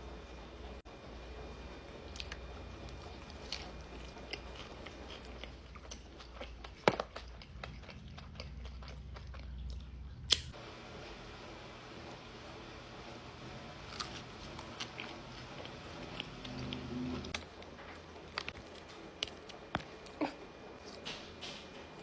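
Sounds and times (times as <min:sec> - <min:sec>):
low steady hum: 0:00.0 - 0:22.0
person chewing food: 0:02.1 - 0:10.5, 0:13.8 - 0:21.2.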